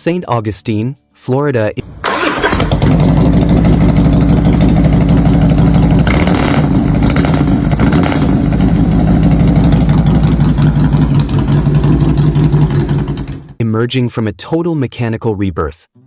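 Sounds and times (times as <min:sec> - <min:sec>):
motorcycle engine idling: 0:01.8 - 0:13.6.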